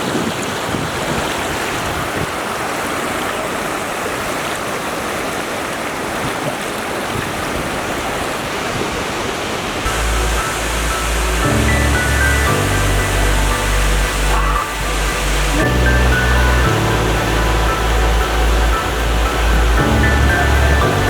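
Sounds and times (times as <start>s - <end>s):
river water rushing: 0.0s - 21.0s
background music with low bass: 9.9s - 21.0s.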